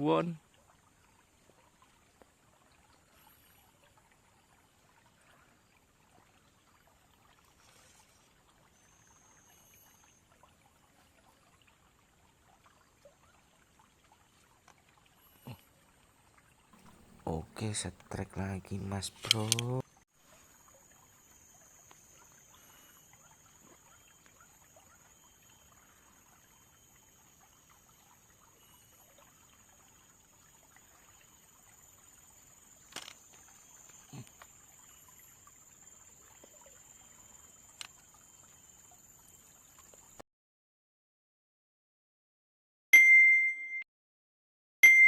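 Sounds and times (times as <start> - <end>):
soft clicks: 16.8 - 19.8
faint steady hiss: 16.8 - 40.2.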